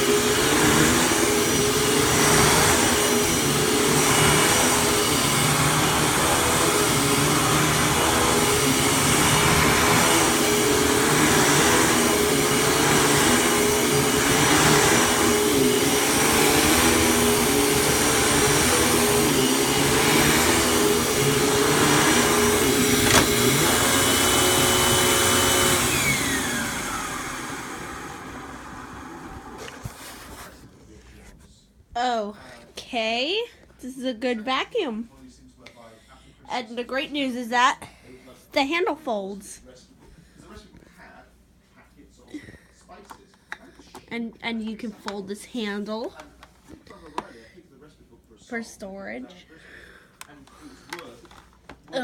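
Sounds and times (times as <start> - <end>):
vacuum cleaner motor running: 0.0 - 30.6.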